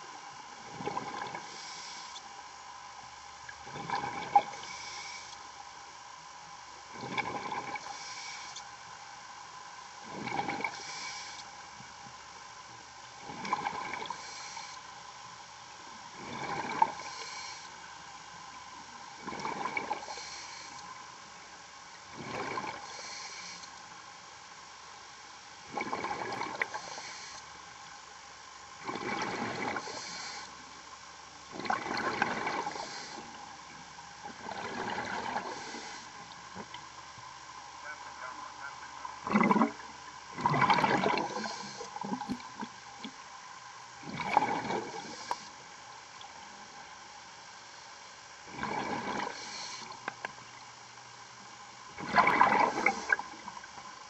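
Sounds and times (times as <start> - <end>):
steady background hum: 0.0 - 54.0
underwater bubbles: 0.0 - 54.0
diver breathing through regulator: 1.3 - 2.2, 4.5 - 5.4, 7.4 - 8.6, 10.2 - 11.5, 14.0 - 14.8, 16.2 - 17.8, 19.9 - 20.9, 22.4 - 23.7, 26.6 - 27.5, 29.2 - 30.6, 32.3 - 33.4, 35.0 - 36.2, 40.8 - 42.3, 44.8 - 45.6, 49.0 - 50.0, 52.6 - 53.4.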